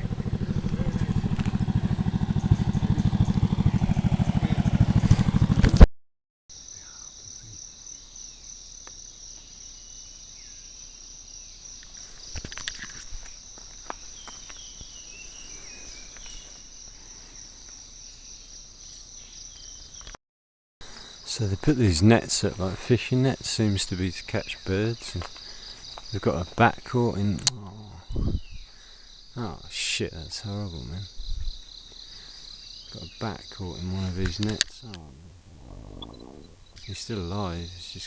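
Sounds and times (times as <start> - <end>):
faint chirping calls: 0.0 - 4.7, 9.3 - 20.2, 30.7 - 38.0
motorbike engine running: 0.0 - 5.9.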